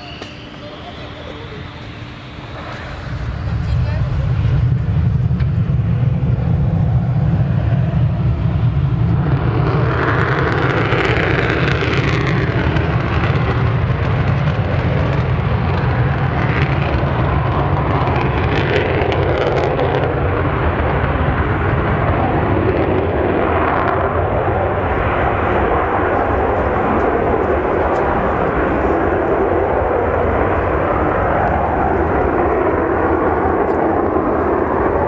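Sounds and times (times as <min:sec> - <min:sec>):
jet hiss: 0:00.0 - 0:06.8
jet engines rumbling: 0:00.0 - 0:35.0.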